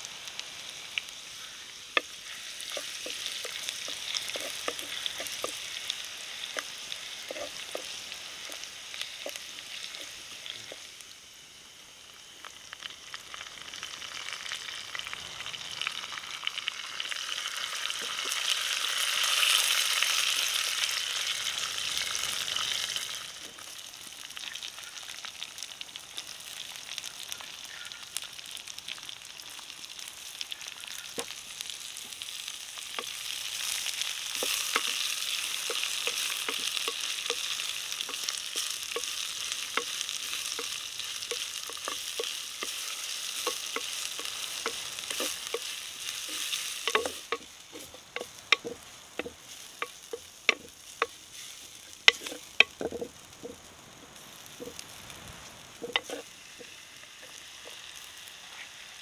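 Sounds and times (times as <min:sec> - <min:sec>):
food sizzling in hot oil: 0:00.0 - 0:59.0
spatula tapping clay pot: 0:46.9 - 0:50.7, 0:52.1 - 0:53.1.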